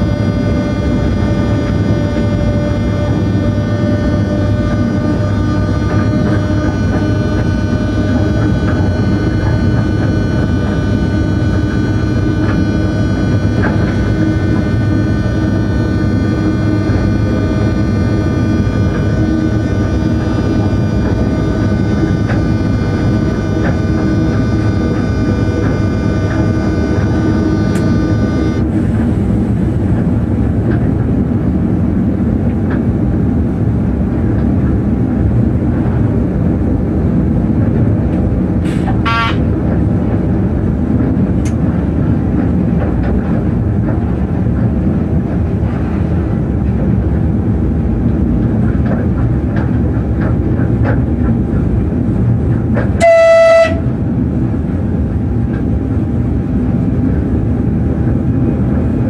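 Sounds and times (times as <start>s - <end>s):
short faint tone: 0.0s - 29.3s
high whine: 0.0s - 59.0s
locomotive horn: 0.0s - 59.0s
train wheels rumbling on track: 0.0s - 59.0s.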